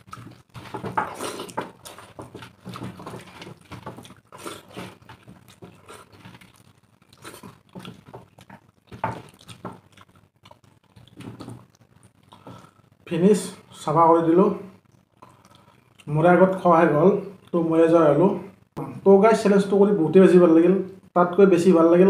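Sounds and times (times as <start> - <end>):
wet chewing and mouth smacking: 0.0 - 12.9, 14.8 - 16.1.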